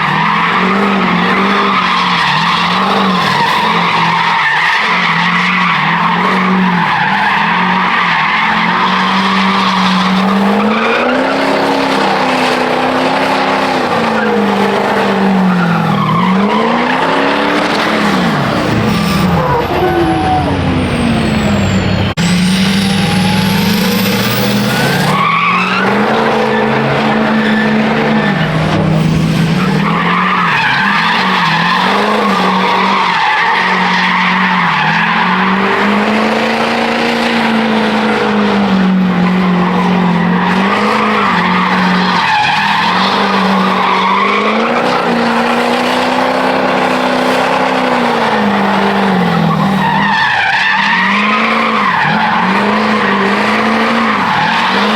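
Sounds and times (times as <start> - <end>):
truck engine at high revs: 0.0 - 54.9.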